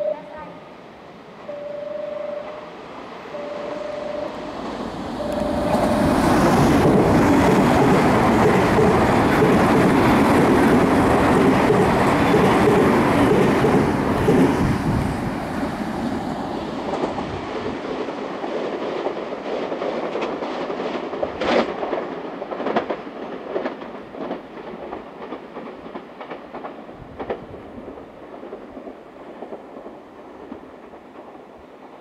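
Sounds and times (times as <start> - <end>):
electric train running: 3.3 - 16.0
wheels clicking over rail joints: 5.3 - 14.5, 16.8 - 31.4.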